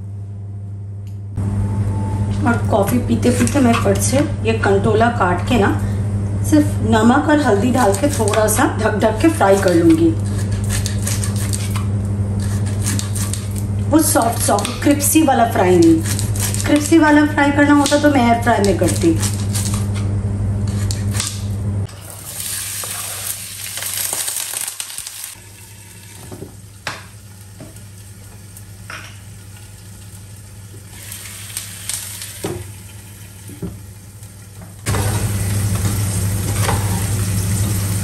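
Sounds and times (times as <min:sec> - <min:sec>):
steady low hum: 0:00.0 - 0:23.8
food sizzling in pans: 0:21.9 - 0:38.0.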